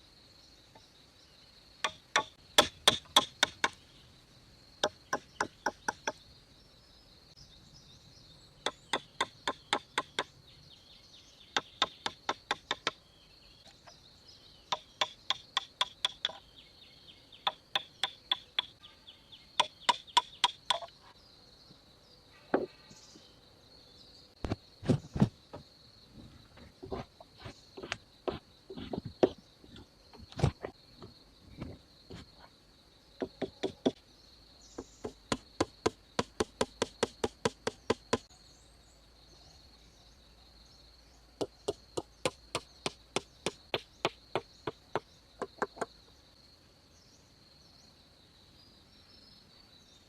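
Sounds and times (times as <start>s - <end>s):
high insect drone: 0.0s - 50.0s
hand tool striking wood: 1.8s - 3.8s, 4.8s - 6.2s, 8.7s - 10.3s, 11.6s - 13.0s, 14.7s - 16.4s, 17.5s - 18.7s, 19.6s - 20.9s, 26.8s - 30.7s, 33.2s - 34.0s, 34.8s - 38.3s, 41.4s - 45.9s
dull thuds: 24.4s - 32.4s.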